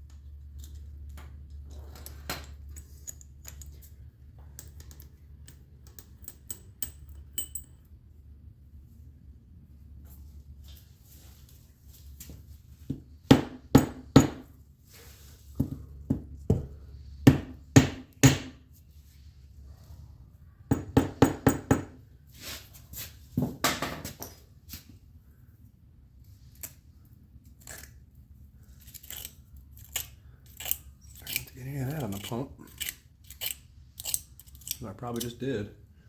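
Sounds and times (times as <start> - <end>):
metal parts clinking: 0.5 - 4.0, 4.6 - 7.9, 28.7 - 35.4.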